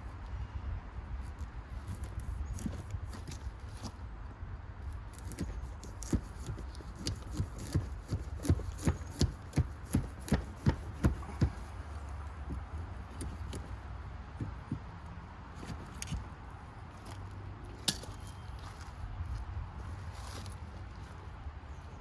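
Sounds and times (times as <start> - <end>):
knife chopping pumpkin: 5.2 - 11.7.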